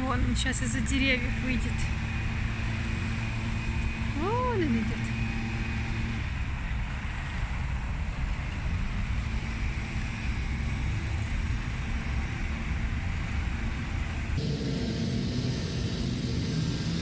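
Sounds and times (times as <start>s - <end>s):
distant traffic: 14.4s - 17.0s.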